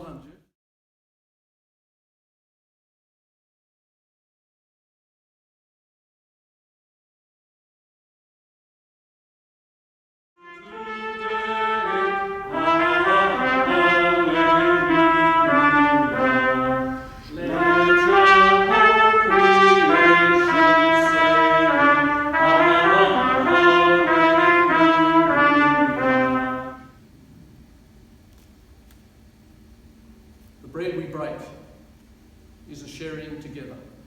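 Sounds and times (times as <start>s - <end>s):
brass instrumental music: 10.4s - 27.0s.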